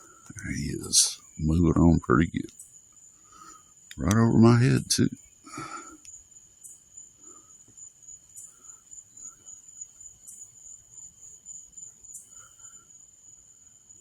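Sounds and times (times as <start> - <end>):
insects high-pitched trill: 0.0 - 14.0
short high insect chirps: 2.4 - 4.1, 5.1 - 13.0.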